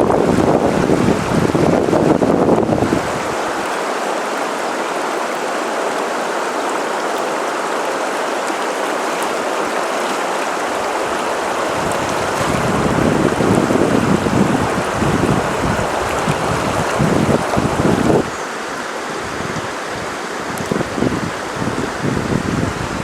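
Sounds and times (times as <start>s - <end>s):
wind buffeting microphone: 0.0s - 3.7s, 10.6s - 18.4s, 19.2s - 23.0s
running water hiss: 0.5s - 23.0s.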